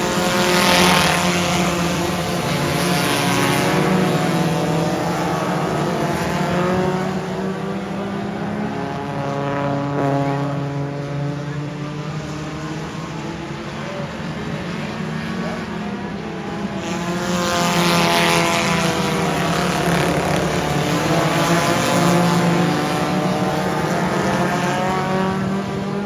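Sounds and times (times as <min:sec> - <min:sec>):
race car engines passing: 0:00.0 - 0:26.0.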